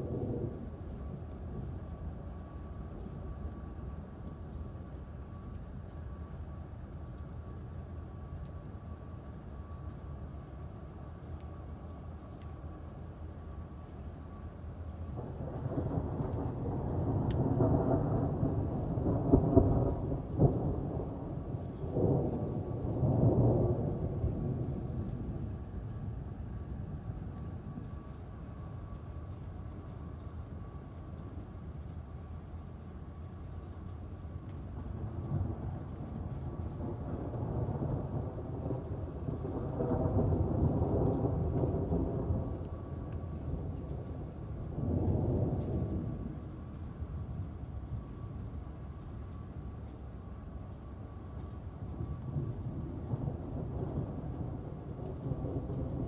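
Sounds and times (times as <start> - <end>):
steady rain: 0.0 - 56.0
thunder rolling and cracking: 15.2 - 25.8, 34.8 - 46.4, 52.0 - 56.0.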